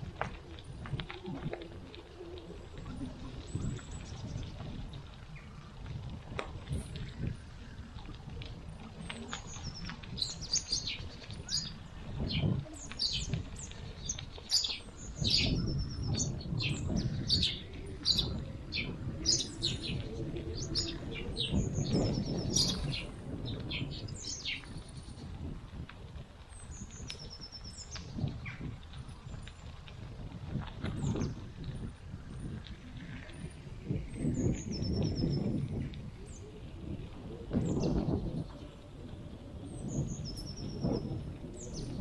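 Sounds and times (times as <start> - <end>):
bicycle rumbling on path: 0.0 - 42.0
birds chirping and trilling: 9.0 - 25.2, 30.9 - 42.0.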